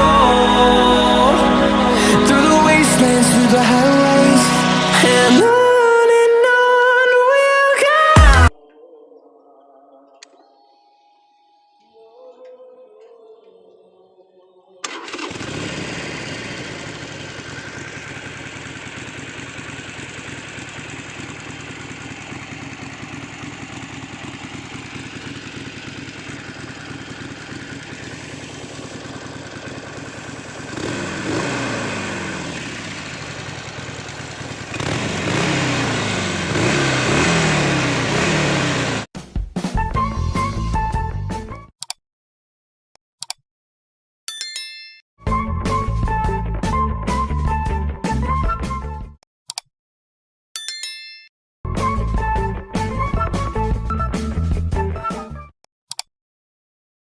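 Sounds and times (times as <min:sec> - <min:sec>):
motorcycle engine idling and revving: 0:14.8 - 0:39.1.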